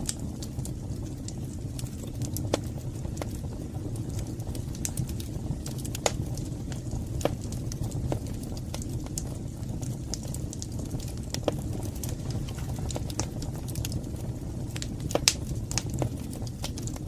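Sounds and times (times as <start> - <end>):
fire crackling and popping: 0.0 - 17.0
fire flames rumbling: 0.0 - 17.0.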